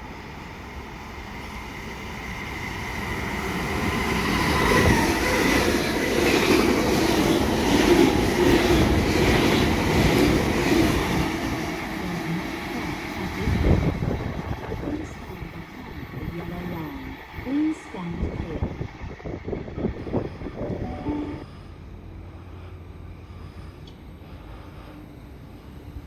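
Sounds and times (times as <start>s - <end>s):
thin high tone: 20.8s - 21.6s.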